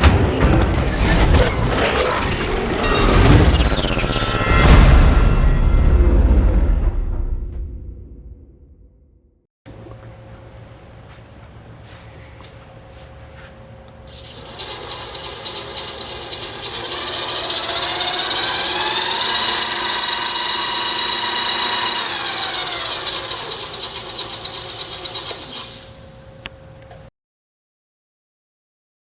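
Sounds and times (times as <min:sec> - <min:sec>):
drill press motor whine: 0:14.1 - 0:26.9.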